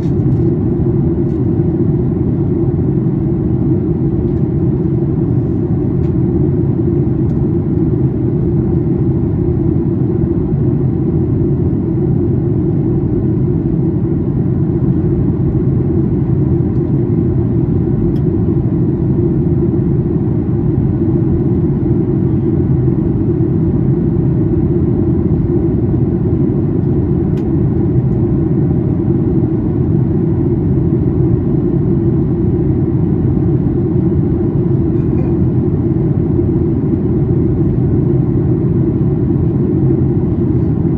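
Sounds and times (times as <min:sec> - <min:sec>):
airplane cabin drone: 0:00.0 - 0:40.9.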